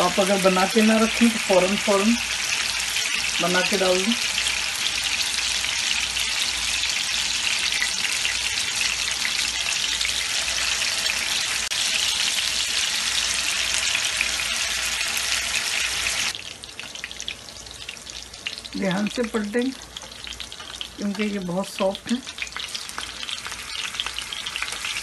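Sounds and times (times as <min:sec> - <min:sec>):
meat sizzling in a pan: 0:00.0 - 0:25.0.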